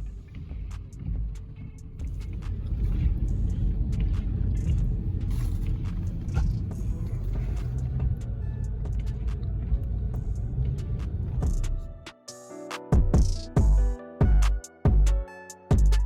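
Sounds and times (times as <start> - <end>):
car road rumble from inside: 0.0 - 11.9.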